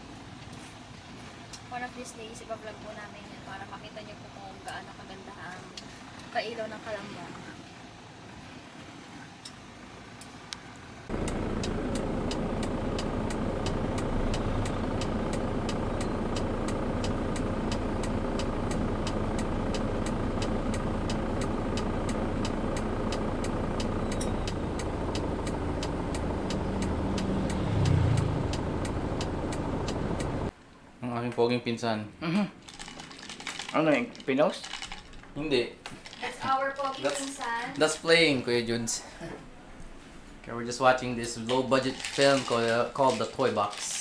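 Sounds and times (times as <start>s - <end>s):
car noise from moving vehicle: 2.6s - 30.6s
rapid light ticks: 10.2s - 30.5s
low hum: 11.1s - 30.5s.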